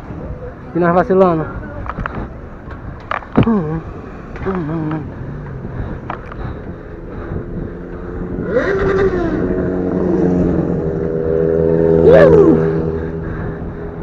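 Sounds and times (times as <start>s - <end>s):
motorcycle engine running: 3.5s - 14.0s.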